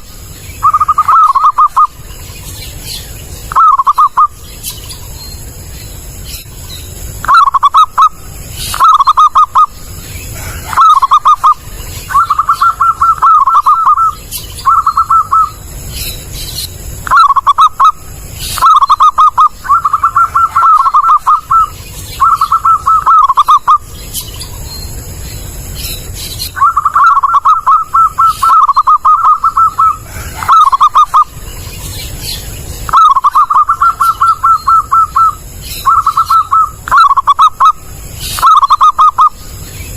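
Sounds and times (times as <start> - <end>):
dove cooing: 0.0 - 2.1, 3.5 - 4.4, 7.2 - 15.7, 17.0 - 23.9, 26.0 - 31.7, 32.9 - 39.6.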